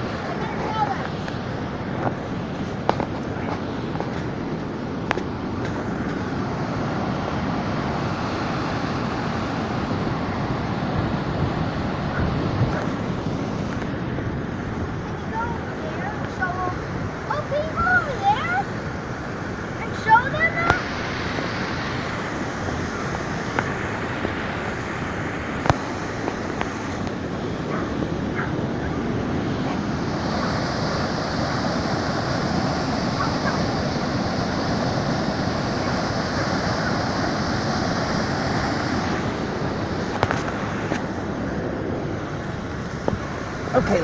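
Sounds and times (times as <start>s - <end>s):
waterfall rushing: 15.1s - 27.8s, 28.8s - 44.0s.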